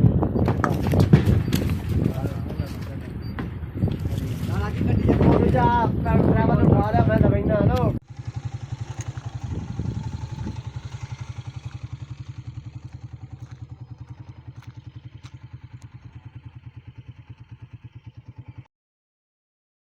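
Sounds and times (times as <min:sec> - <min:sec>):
engine idling with low chugging: 0:00.4 - 0:06.2, 0:08.0 - 0:18.6.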